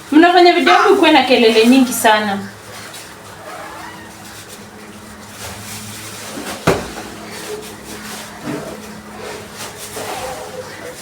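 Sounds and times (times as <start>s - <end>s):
steady low hum: 0.0s - 11.0s
sharp knock: 6.6s - 7.0s.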